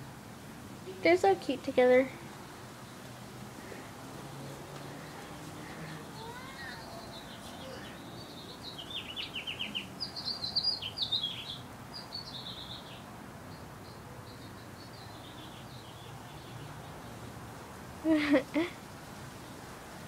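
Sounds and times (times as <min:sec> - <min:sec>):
small songbird singing: 0:05.0 - 0:17.4.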